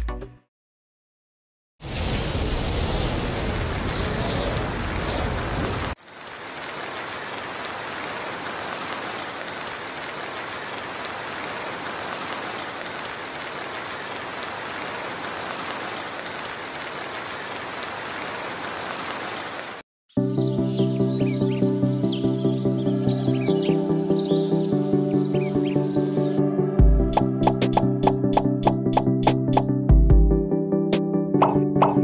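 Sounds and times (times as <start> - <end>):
steady rain falling: 1.8 - 19.8.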